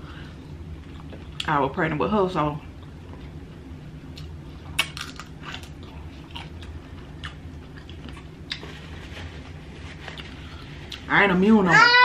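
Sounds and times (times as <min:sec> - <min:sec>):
person chewing shrimp: 0:04.2 - 0:08.7.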